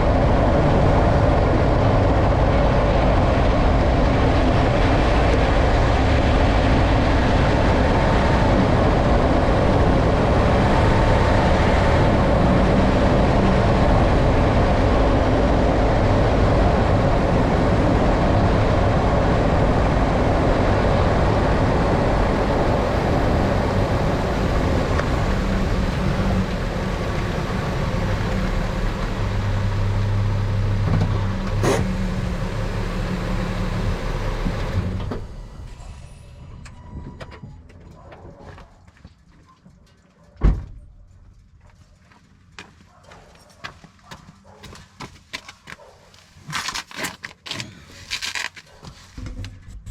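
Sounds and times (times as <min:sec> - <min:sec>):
pickup truck road noise: 0:00.0 - 0:36.6.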